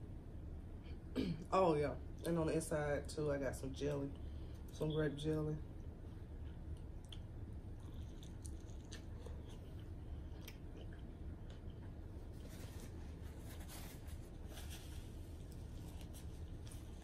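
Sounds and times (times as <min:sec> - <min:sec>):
low steady hum: 0:00.0 - 0:17.0
chewing and wet mouth smacks: 0:06.4 - 0:12.1.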